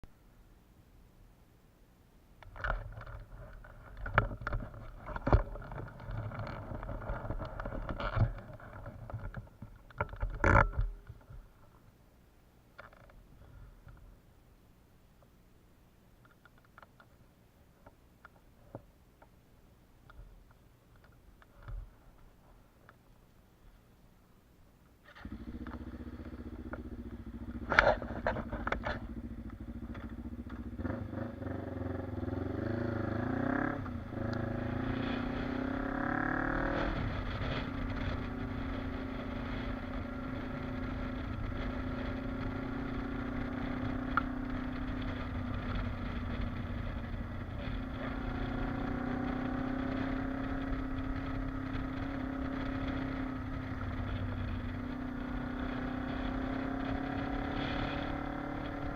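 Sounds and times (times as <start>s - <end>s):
sharp clicks and clunks: 2.4s - 11.4s
motorcycle engine starting and idling: 25.0s - 58.9s.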